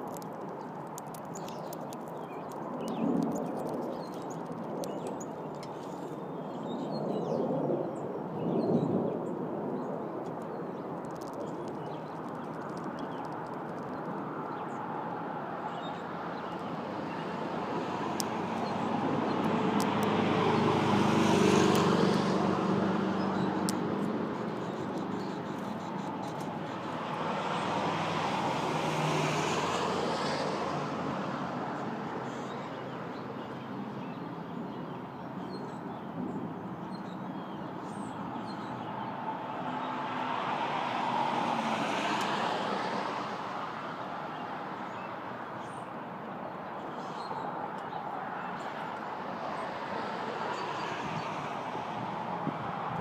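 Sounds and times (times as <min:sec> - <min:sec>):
steady traffic hum: 0:00.0 - 0:53.0
vehicles passing: 0:11.2 - 0:34.0, 0:37.9 - 0:53.0.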